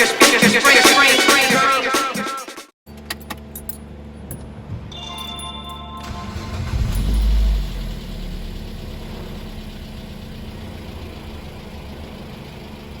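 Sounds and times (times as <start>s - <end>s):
car engine starting and idling: 6.0s - 13.0s.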